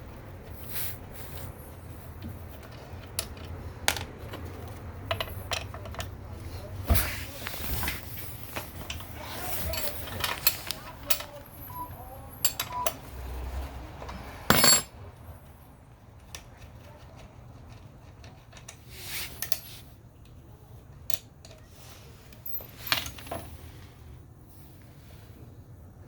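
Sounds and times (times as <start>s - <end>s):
metal parts clattering: 8.7s - 11.4s, 14.5s - 14.9s
metal hand tools clinking: 14.5s - 14.9s.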